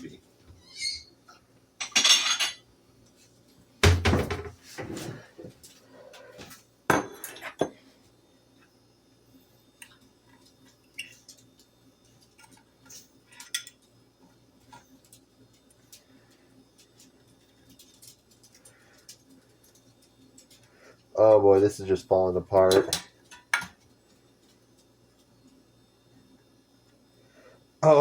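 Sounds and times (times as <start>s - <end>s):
dishes and cutlery clattering: 1.8s - 2.6s, 6.9s - 7.8s.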